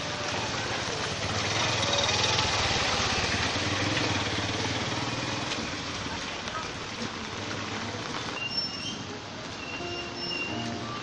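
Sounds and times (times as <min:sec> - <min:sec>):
rain hissing on street: 0:00.0 - 0:11.0
small vehicle engine running: 0:00.5 - 0:05.6.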